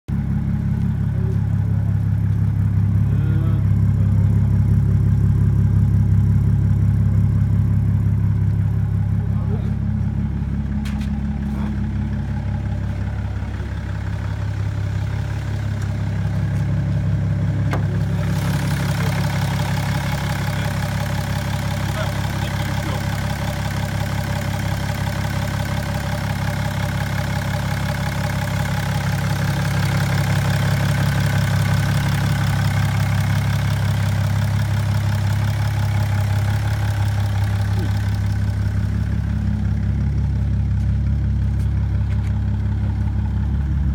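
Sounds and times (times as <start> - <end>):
diesel engine idling: 0.1 - 43.9.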